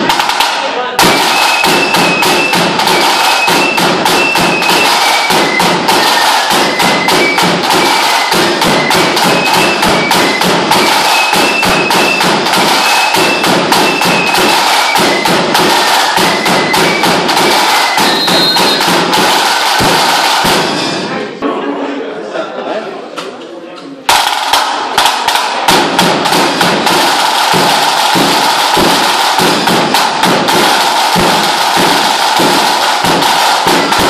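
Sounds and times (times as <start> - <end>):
drum beaten rapidly with sticks: 0.0 - 21.2, 24.1 - 34.0
high piped tune: 1.0 - 21.2.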